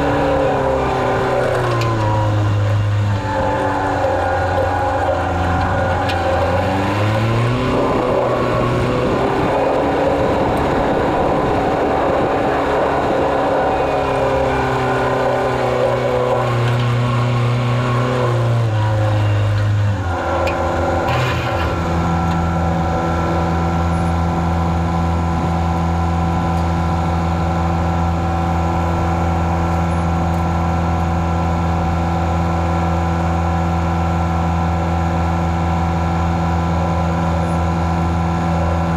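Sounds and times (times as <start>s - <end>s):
farm vehicle engine running: 0.0s - 38.9s.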